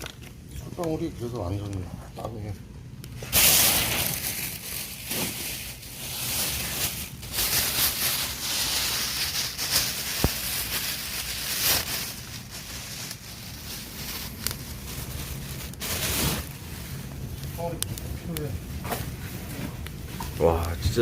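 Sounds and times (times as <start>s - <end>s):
campfire crackling and popping: 3.0s - 3.3s, 9.5s - 21.0s.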